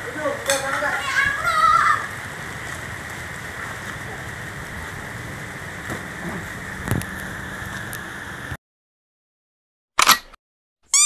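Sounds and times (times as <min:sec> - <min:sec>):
steady rain falling: 0:00.0 - 0:08.6.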